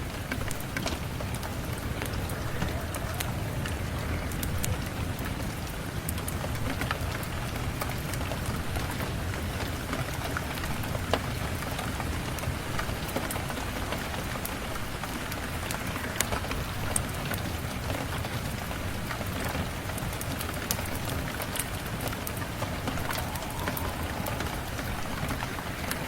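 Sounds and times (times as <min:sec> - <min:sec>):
rain falling: 0:00.0 - 0:26.0
low rumble: 0:22.2 - 0:26.0.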